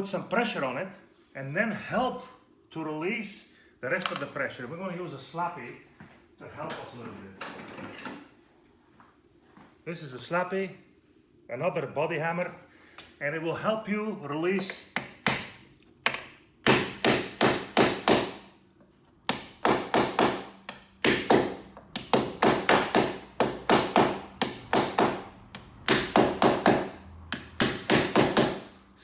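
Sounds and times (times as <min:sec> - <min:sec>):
body hammer tapping on car panel: 0:19.3 - 0:28.7.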